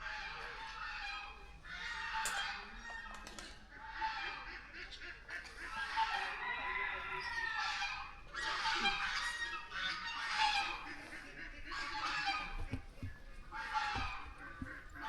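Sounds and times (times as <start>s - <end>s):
fowl calling: 3.7s - 15.0s.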